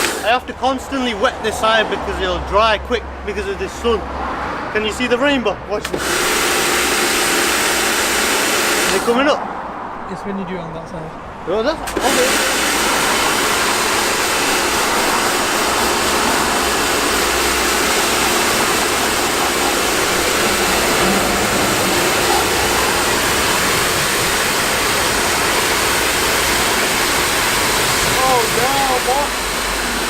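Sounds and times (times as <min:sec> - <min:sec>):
water jet spraying on car: 0:00.0 - 0:00.6, 0:05.8 - 0:09.3, 0:11.9 - 0:30.0.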